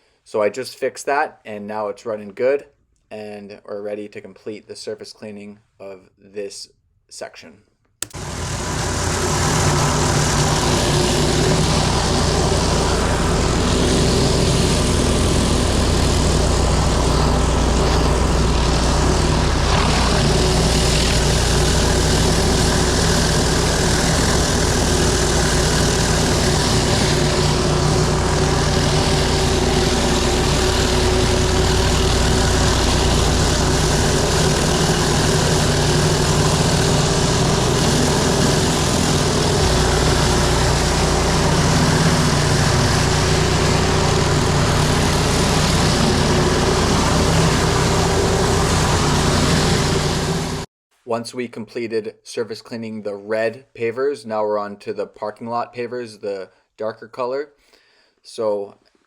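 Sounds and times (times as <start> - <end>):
pressure washer engine running: 8.0 - 50.7.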